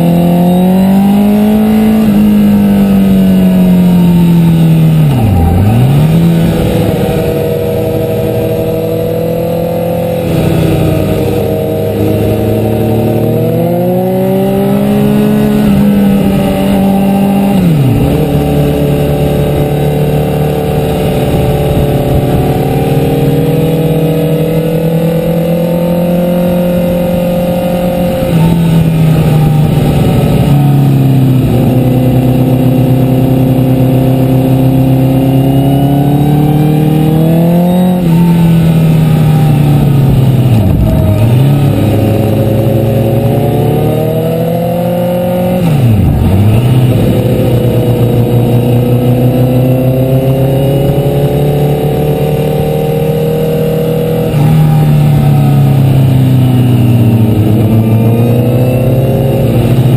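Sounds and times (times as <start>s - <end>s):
motorcycle engine revving: 0.0s - 59.9s
wind rush: 1.1s - 33.2s.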